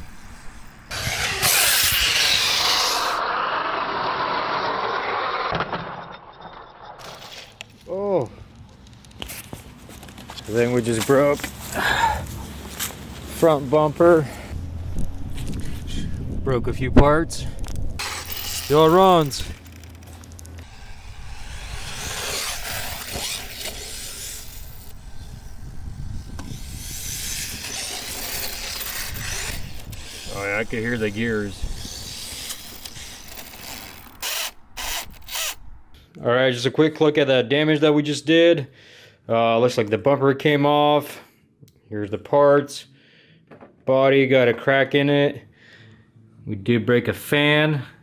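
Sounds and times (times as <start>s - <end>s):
gears grinding: 0.0s - 7.8s, 14.5s - 36.0s
rc truck motor and tyres rushing: 0.0s - 7.8s, 13.4s - 36.0s.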